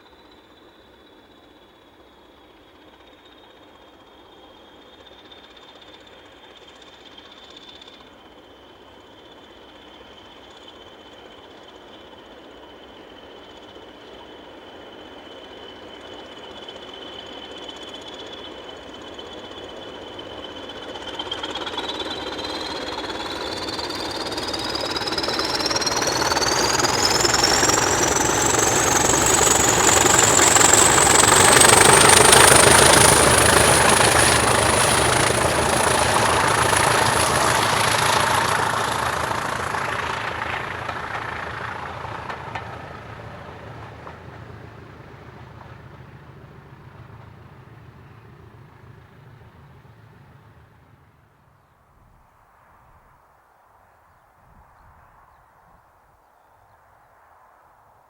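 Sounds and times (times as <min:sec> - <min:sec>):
diesel locomotive engine clatter: 0:16.1 - 0:51.3
turbocharger whistle: 0:21.0 - 0:50.2.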